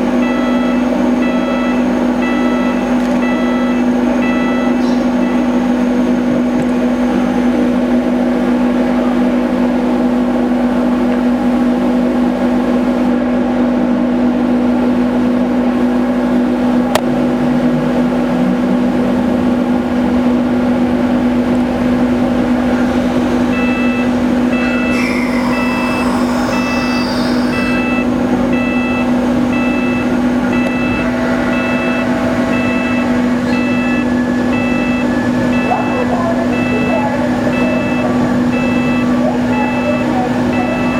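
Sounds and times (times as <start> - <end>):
ferry machinery low hum: 0.0 - 40.9
electronic beeps: 23.5 - 40.9.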